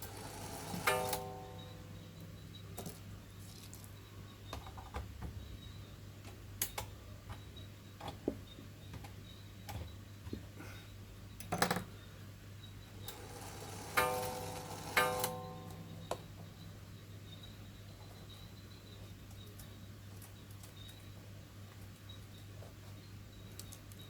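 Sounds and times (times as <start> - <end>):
low steady hum: 0.0 - 24.0
tools clicking and tapping: 13.8 - 16.3.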